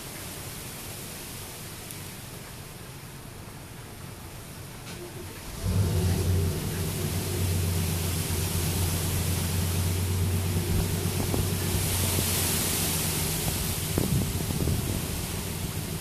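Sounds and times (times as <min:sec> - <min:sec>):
wind gusts: 0:00.0 - 0:16.0
wind-driven rain hissing: 0:00.0 - 0:16.0
low rumble: 0:05.5 - 0:16.0.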